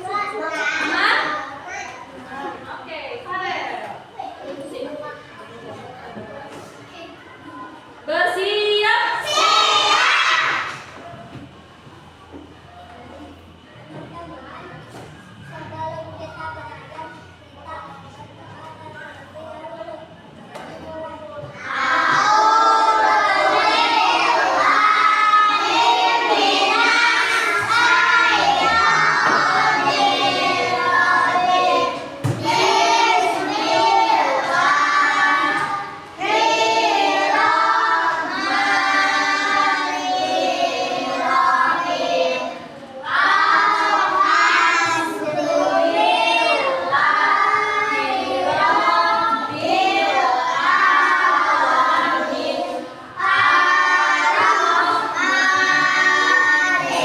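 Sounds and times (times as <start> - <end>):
children singing in unison: 9.2 - 11.0, 21.5 - 57.0.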